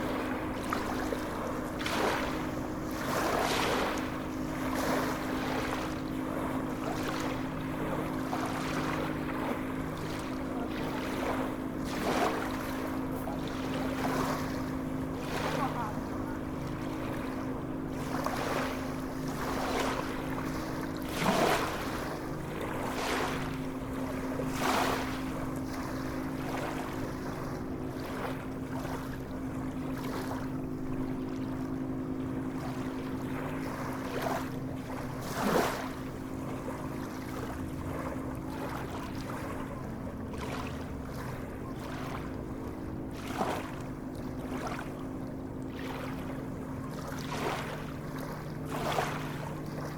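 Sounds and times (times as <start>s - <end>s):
sea water splashing and lapping: 0.0s - 49.9s
steady low hum: 0.0s - 49.9s.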